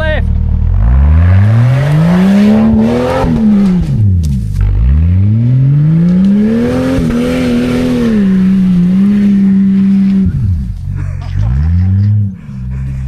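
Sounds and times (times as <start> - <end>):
engine revving hard: 0.6 - 12.2.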